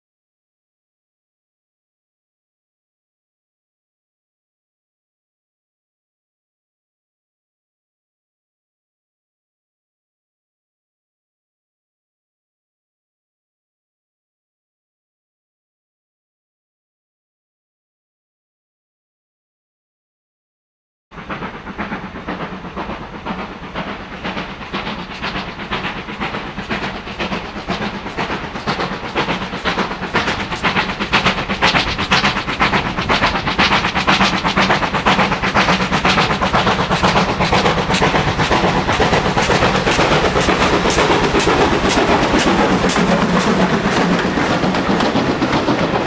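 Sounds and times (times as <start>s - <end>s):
steam locomotive exhaust beats: 21.2s - 46.0s.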